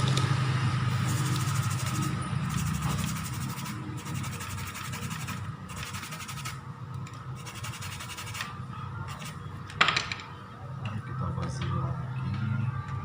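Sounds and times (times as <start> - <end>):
brush scrubbing circuit board: 1.0 - 6.6, 7.4 - 8.5, 9.1 - 9.4.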